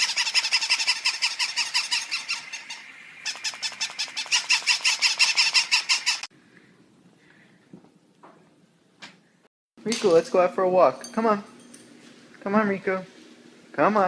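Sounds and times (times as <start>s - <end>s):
high-pitched squeaky calls: 0.0s - 6.3s.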